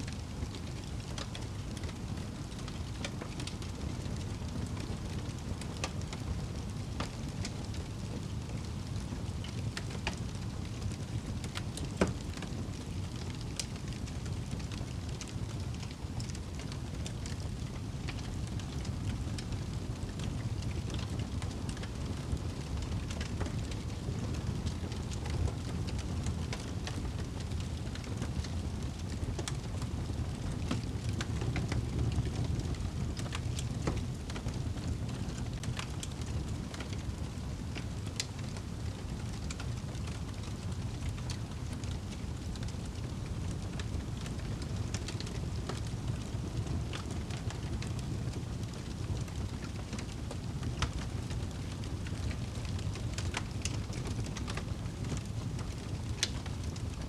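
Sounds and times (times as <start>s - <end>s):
wood fire crackling and popping: 0.1s - 57.0s.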